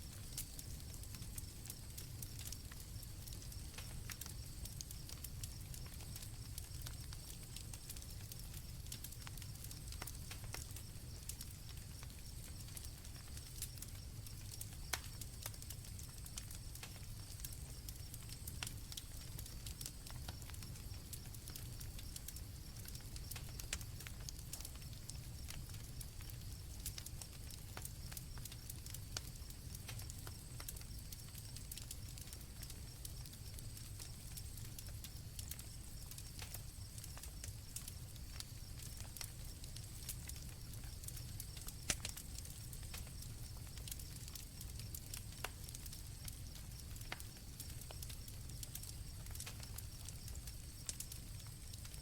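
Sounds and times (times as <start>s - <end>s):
campfire crackling and popping: 0.0s - 52.0s
crickets chirping: 24.8s - 52.0s.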